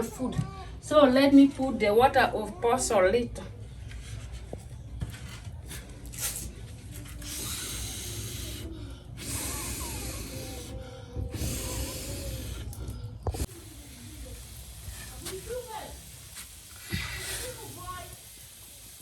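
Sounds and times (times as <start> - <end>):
water pouring into a pot: 13.4 - 19.0.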